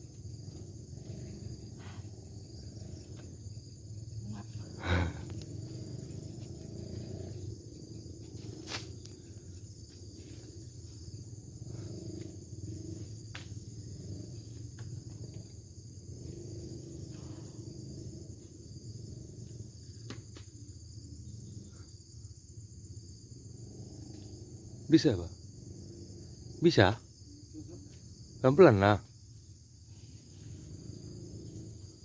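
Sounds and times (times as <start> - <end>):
high-pitched insect chorus: 0.0 - 32.0.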